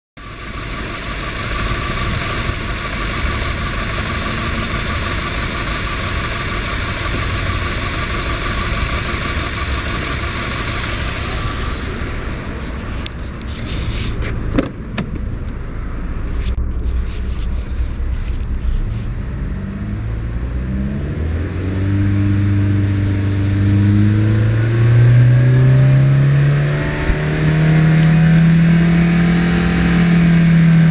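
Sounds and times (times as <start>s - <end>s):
loud high hiss: 0.2s - 14.2s
car engine idling: 0.2s - 30.9s.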